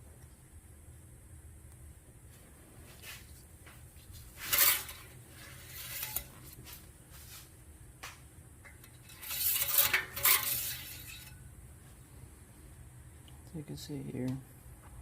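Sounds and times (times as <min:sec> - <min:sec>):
dipstick rattling: 0:08.6 - 0:11.5.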